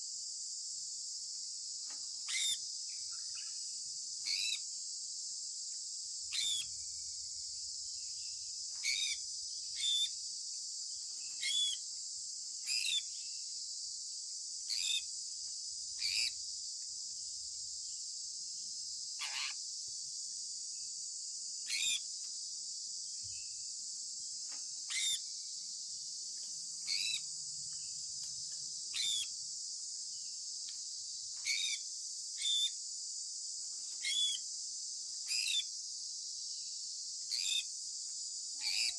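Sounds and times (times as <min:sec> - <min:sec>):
parrot chirping: 0:06.3 - 0:06.7, 0:24.9 - 0:25.2, 0:26.9 - 0:27.2, 0:28.9 - 0:29.3.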